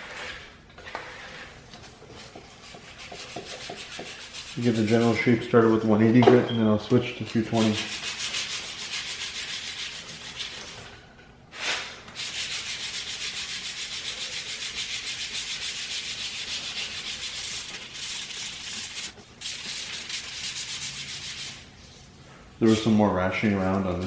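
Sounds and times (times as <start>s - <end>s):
sandpaper sanding by hand: 2.2s - 6.1s, 7.2s - 10.8s, 12.2s - 21.8s.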